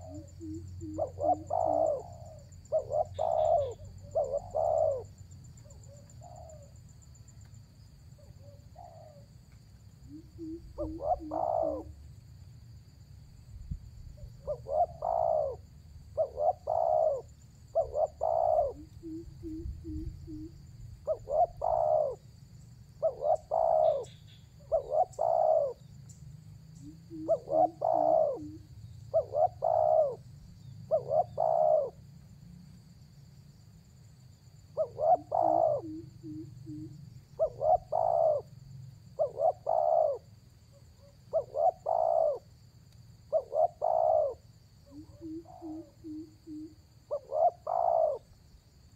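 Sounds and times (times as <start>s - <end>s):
dove cooing: 0.0s - 6.8s, 8.2s - 9.3s, 10.1s - 12.0s, 14.2s - 22.2s, 23.0s - 25.9s, 26.8s - 30.2s, 30.9s - 32.0s, 34.7s - 42.5s, 43.3s - 48.4s.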